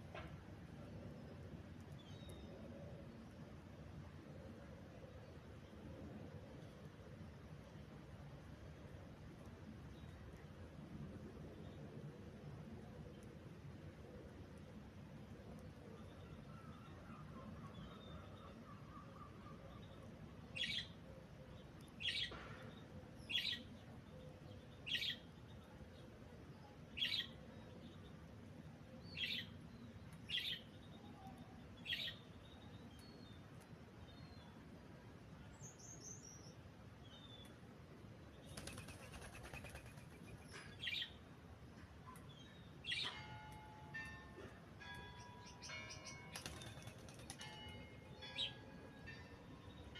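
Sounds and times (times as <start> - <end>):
wings flapping: 38.5 - 40.4, 46.4 - 47.5.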